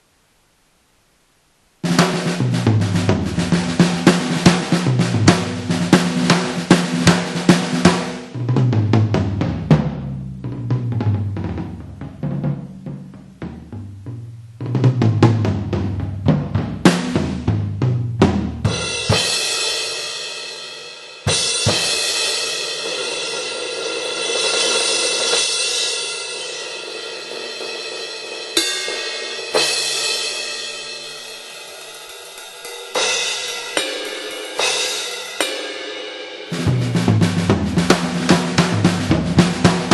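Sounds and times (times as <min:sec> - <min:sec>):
drum hits: 0:01.8 - 0:19.9, 0:21.3 - 0:23.5, 0:28.4 - 0:35.8, 0:36.5 - 0:39.9
cymbal crashes: 0:18.7 - 0:39.9.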